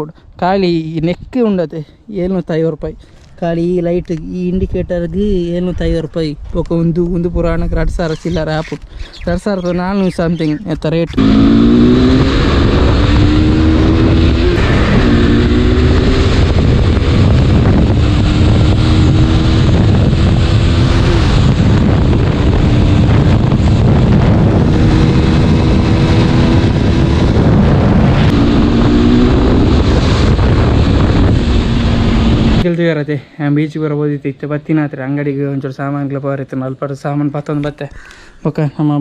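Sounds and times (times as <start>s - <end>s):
wind noise on microphone: 2.4s - 32.7s
motorcycle engine accelerating: 11.2s - 32.6s.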